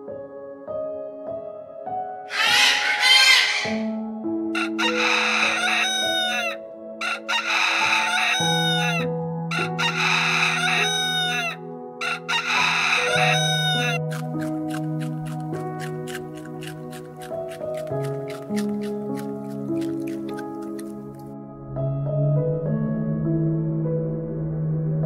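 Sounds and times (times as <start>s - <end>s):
soft music with held notes: 0.0s - 25.0s
rooster crowing: 2.3s - 3.9s, 4.6s - 14.0s.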